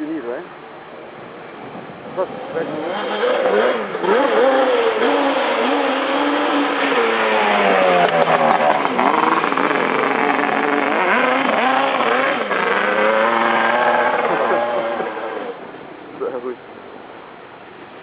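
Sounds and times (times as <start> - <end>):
dirt bike and quad engines revving: 2.2 - 16.6.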